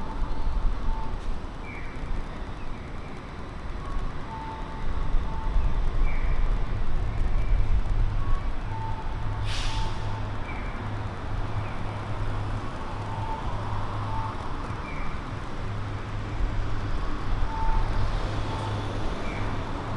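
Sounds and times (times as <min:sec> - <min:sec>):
heavy vehicle engine: 0:06.6 - 0:19.9
air brake hiss: 0:09.4 - 0:10.2.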